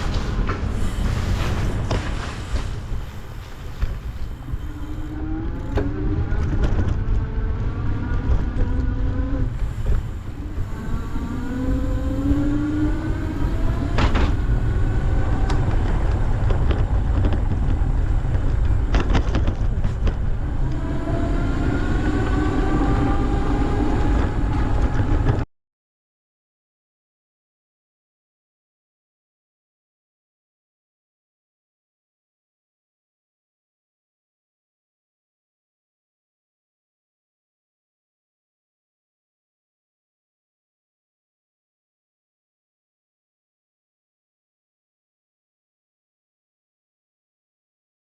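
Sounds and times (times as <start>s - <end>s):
mechanical whine: 0.0s - 25.4s
wind rumble on microphone: 0.0s - 25.5s.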